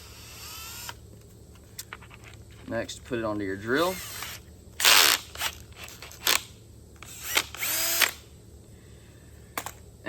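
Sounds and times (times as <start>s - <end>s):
power drill spinning: 0.0s - 1.0s, 3.8s - 6.4s, 7.0s - 8.2s.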